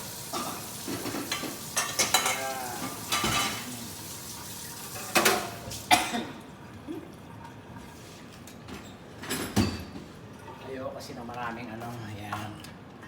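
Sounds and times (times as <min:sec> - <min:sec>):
curry sizzling in a pan: 0:00.0 - 0:05.9.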